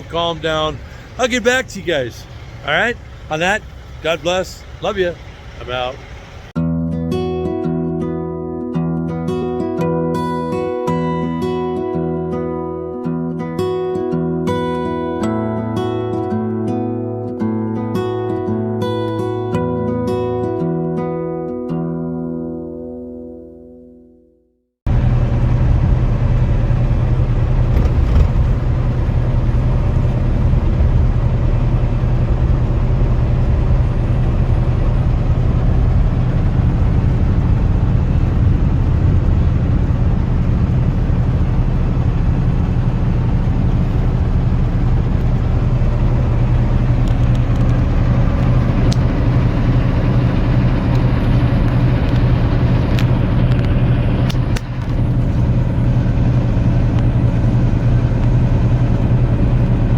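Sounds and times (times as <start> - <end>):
diesel truck engine drone: 0.0 - 6.6, 24.9 - 59.9
road noise: 0.0 - 6.6, 24.9 - 59.9.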